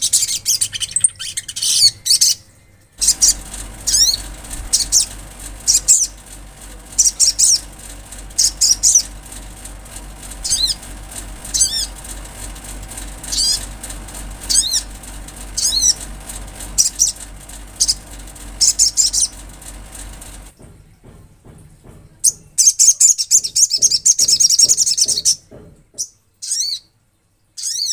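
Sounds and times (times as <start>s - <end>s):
bird high chirps: 0.0s - 6.2s
steady low hum: 0.0s - 22.8s.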